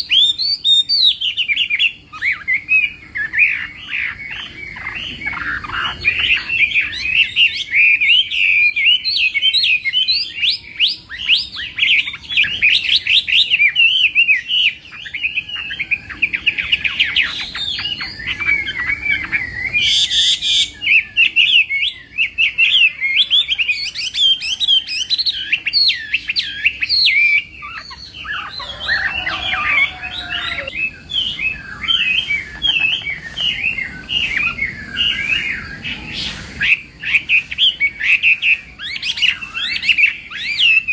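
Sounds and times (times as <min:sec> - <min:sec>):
bird singing whistled song: 0:00.0 - 0:40.9
bird harsh rasp: 0:27.2 - 0:40.6.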